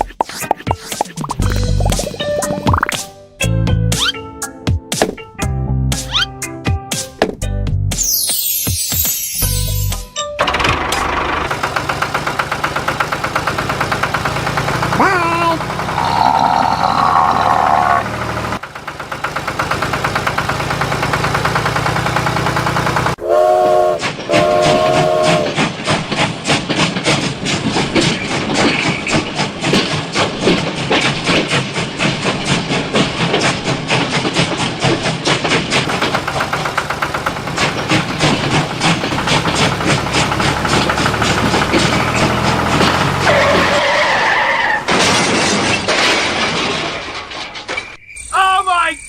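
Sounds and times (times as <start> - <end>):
train horn blasts: 23.2 - 25.6
train wheels clattering: 24.0 - 43.8.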